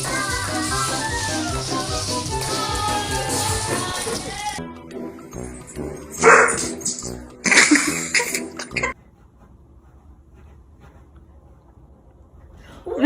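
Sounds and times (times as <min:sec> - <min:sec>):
background music: 0:00.0 - 0:09.3
dog barking: 0:06.2 - 0:06.7.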